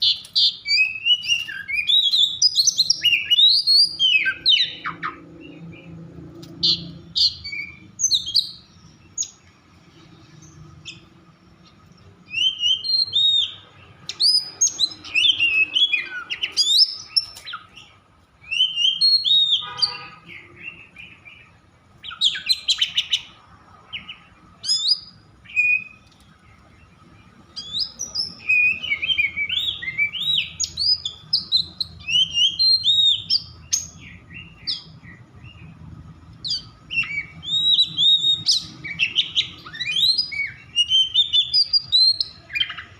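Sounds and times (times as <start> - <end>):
bird singing whistled phrases: 0.0 - 5.9, 6.6 - 9.4, 12.3 - 23.4, 24.6 - 26.0, 27.5 - 35.7, 36.4 - 42.9.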